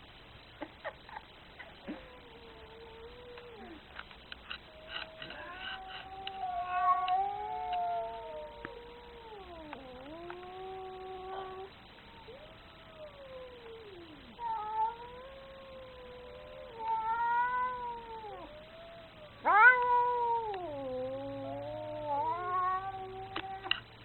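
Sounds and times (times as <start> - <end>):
angry cat yowling: 4.8 - 23.8.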